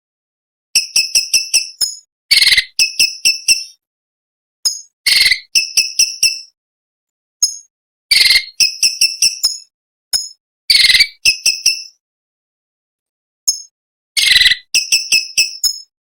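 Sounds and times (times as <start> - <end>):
bird singing: 0.8 - 3.8, 13.5 - 15.9.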